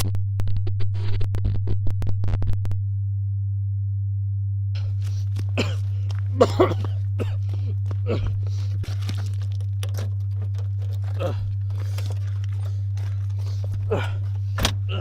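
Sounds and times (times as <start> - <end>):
low electronic hum: 0.0 - 15.0
rustling crackles: 4.8 - 14.9.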